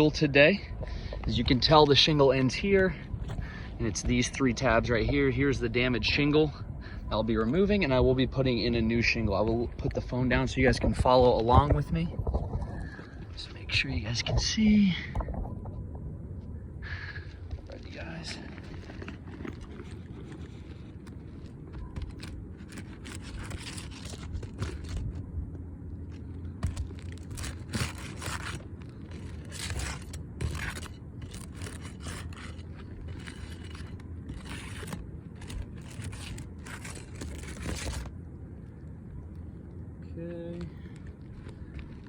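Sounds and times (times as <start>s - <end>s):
roof shingles scraping and tearing: 17.9s - 25.3s, 26.0s - 38.2s.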